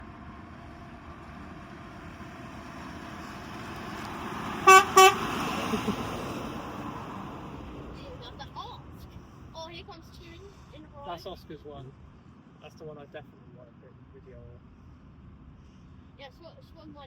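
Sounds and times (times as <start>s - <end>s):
vehicle passing: 0.2s - 10.7s
short loud horn toots: 4.7s - 5.2s.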